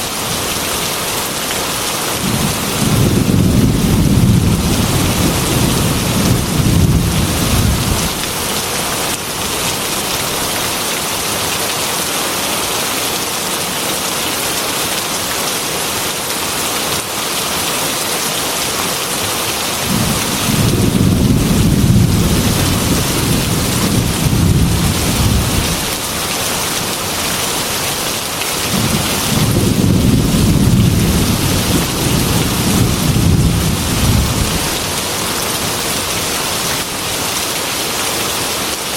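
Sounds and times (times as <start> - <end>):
heavy rain hissing: 0.0 - 13.8, 15.1 - 38.9
rolling thunder: 2.2 - 8.2, 19.9 - 25.9, 28.7 - 34.9.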